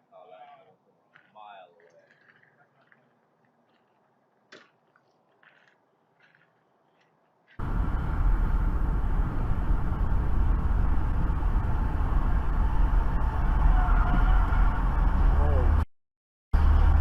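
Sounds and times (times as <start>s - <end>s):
moving car rumble and road noise: 7.6s - 15.9s, 16.6s - 17.0s.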